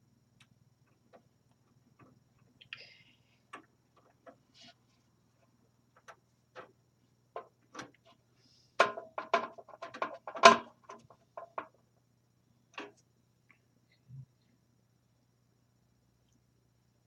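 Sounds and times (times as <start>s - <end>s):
parts knocking in metal case: 8.8s - 11.8s.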